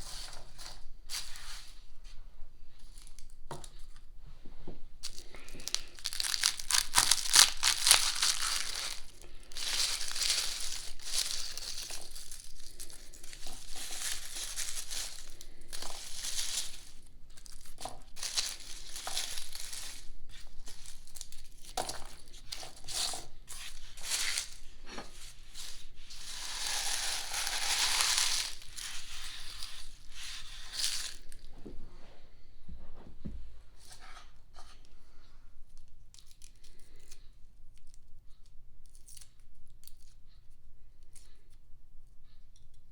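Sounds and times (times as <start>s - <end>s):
garlic skins crackling and tearing: 5.0s - 31.5s, 35.7s - 38.0s, 38.8s - 40.2s.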